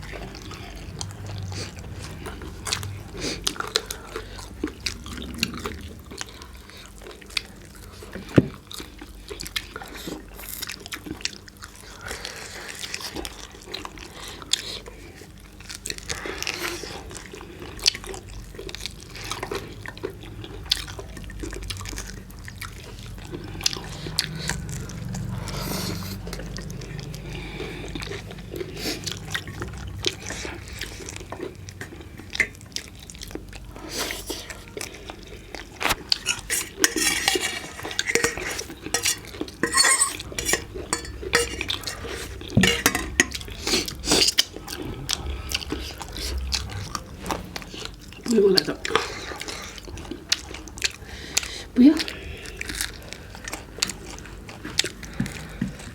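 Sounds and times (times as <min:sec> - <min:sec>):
plates and cutlery clinking: 0:36.1 - 0:44.4.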